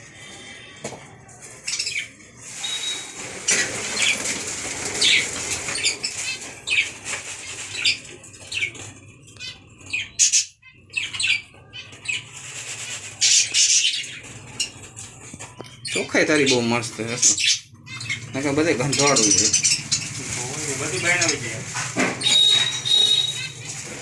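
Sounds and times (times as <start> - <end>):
bird calls: 1.7 - 12.5, 13.2 - 24.0
birds flapping wings: 2.5 - 9.0.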